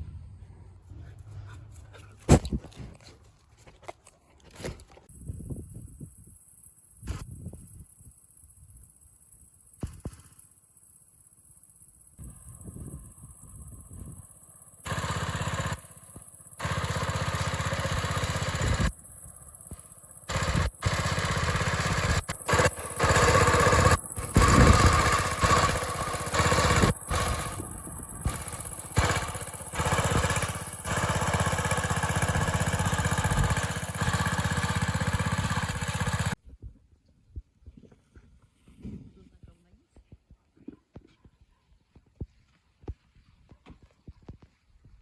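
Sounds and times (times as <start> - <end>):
engine running: 3.8 - 36.4.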